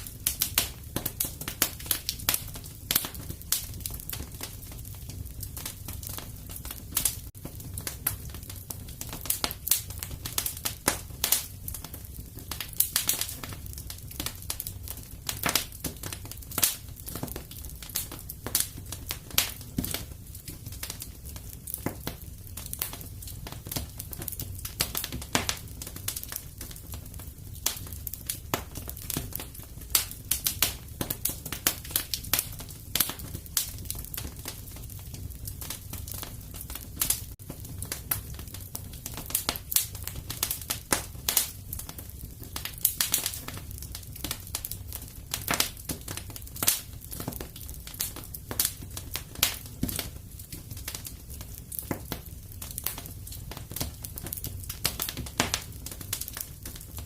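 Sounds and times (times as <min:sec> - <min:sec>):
fire popping and snapping: 0:00.0 - 0:57.0
low fire rumble: 0:00.0 - 0:57.0.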